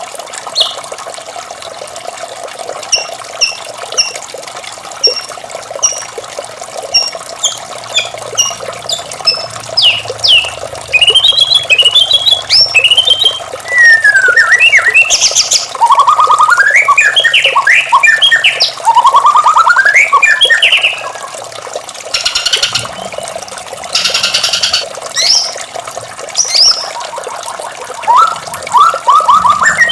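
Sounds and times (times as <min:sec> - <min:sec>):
running water: 0:00.0 - 0:29.9
bird singing whistles and trills: 0:00.6 - 0:00.8, 0:07.0 - 0:21.2, 0:24.0 - 0:25.6, 0:26.4 - 0:29.9.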